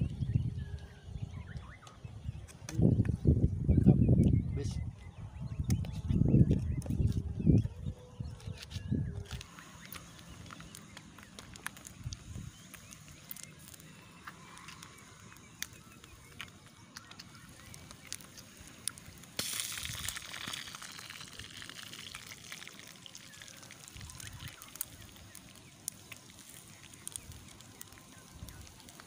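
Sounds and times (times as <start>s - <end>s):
fish sizzling in oil: 9.4s - 29.0s.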